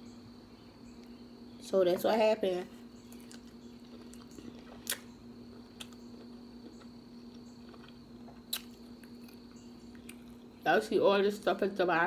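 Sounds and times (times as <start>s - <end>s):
steady low hum: 0.0s - 12.0s
wet chewing smacks and clicks: 3.0s - 9.4s.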